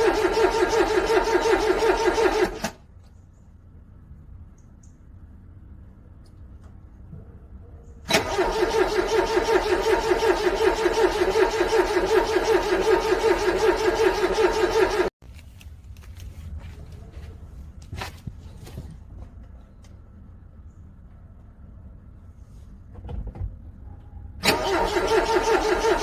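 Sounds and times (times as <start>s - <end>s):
car engine cranking on starter: 0.0s - 2.8s, 8.1s - 15.1s, 24.4s - 26.0s.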